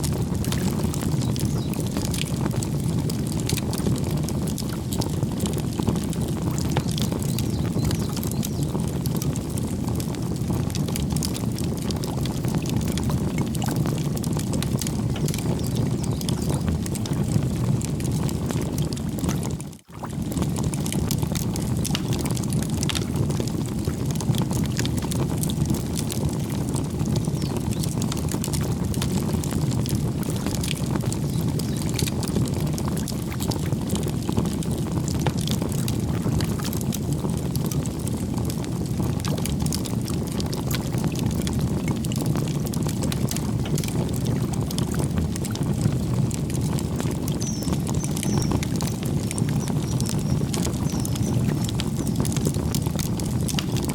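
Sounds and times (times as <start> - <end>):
campfire crackling: 0.0 - 53.9
bird chirp: 6.8 - 8.7, 47.4 - 51.4.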